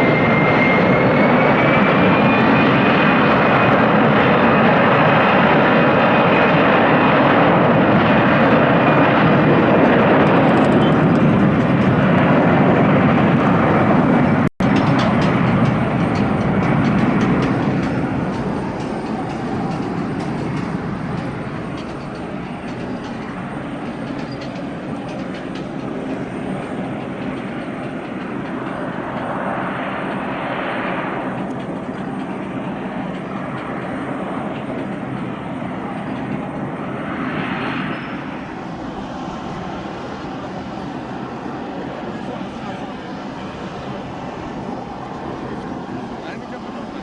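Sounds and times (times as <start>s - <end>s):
jet engines roaring: 0.0s - 47.0s.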